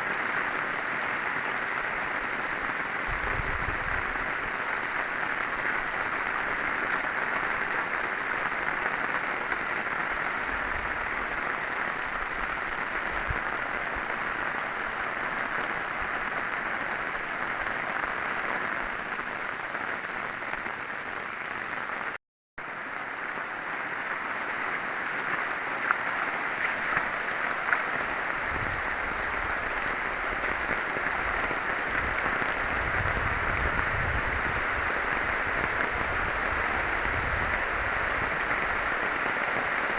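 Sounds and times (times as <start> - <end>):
heavy rain: 0.0 - 39.9
rain drop ticks: 29.3 - 32.8.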